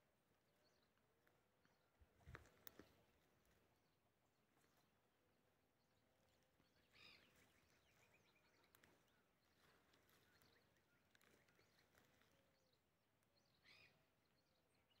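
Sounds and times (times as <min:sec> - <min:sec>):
faint bird chirps: 0:06.2 - 0:15.0.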